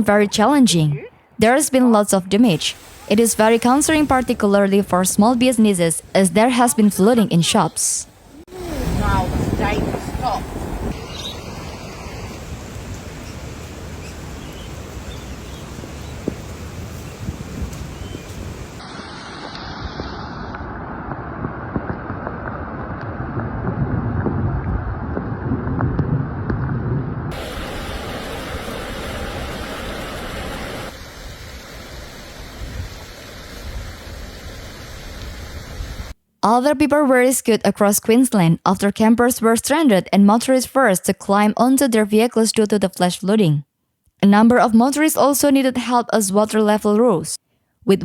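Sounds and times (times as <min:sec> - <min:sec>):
floodwater rushing: 0:02.5 - 0:21.5, 0:27.3 - 0:36.1.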